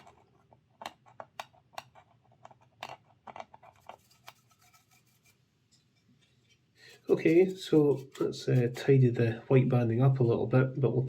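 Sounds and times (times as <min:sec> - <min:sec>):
scalpel blade scraping paint: 0:06.8 - 0:09.0.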